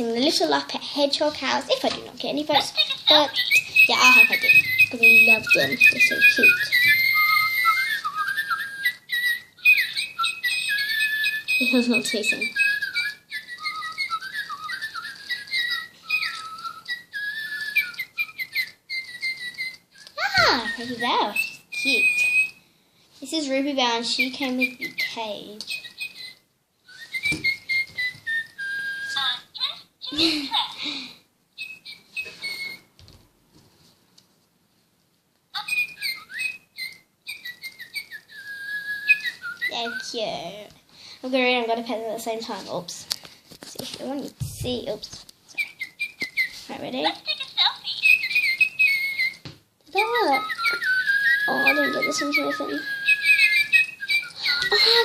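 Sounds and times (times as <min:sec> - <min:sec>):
electronic toy birds chirping: 0:02.5 - 0:22.6, 0:24.2 - 0:26.4, 0:27.0 - 0:30.4, 0:31.6 - 0:32.9, 0:35.6 - 0:40.2, 0:45.6 - 0:55.0.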